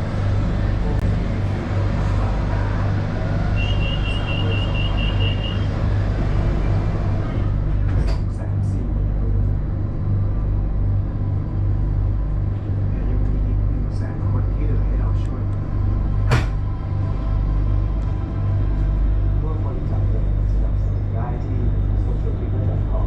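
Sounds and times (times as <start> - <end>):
train rumble and hum: 0.0 - 23.0
high electronic beeps: 3.6 - 5.7.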